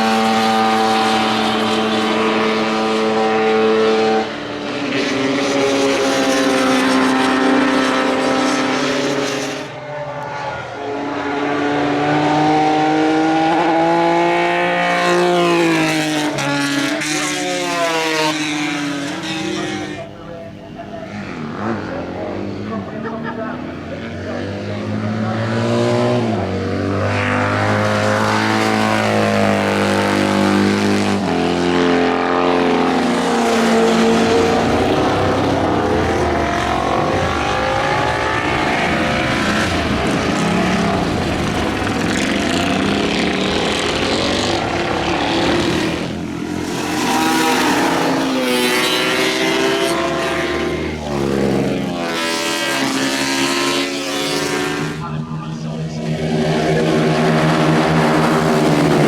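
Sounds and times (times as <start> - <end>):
motorcycles racing past: 0.0 - 20.1, 21.2 - 59.0.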